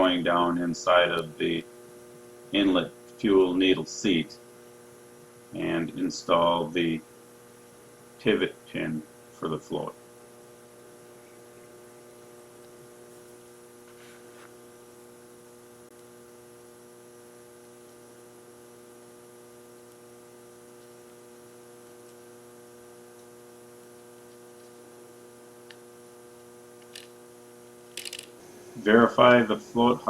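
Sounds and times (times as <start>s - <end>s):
electrical mains hum: 0.0s - 30.0s.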